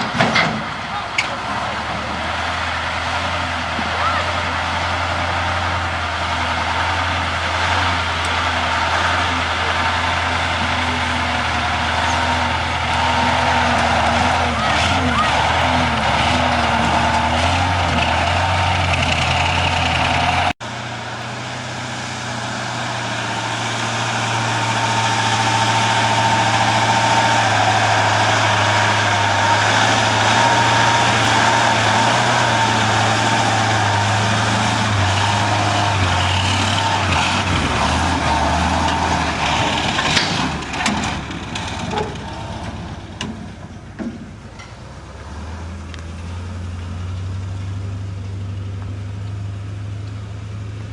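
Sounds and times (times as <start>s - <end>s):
knocks and clatters: 0.0s - 2.3s, 36.3s - 44.9s
diesel truck engine humming: 0.0s - 50.9s.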